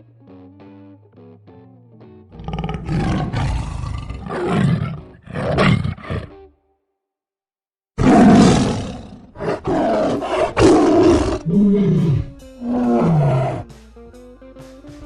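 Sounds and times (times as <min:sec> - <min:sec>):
guitar music: 0:00.0 - 0:02.9, 0:10.5 - 0:15.0
loud animal roars: 0:02.4 - 0:06.3, 0:08.0 - 0:13.7.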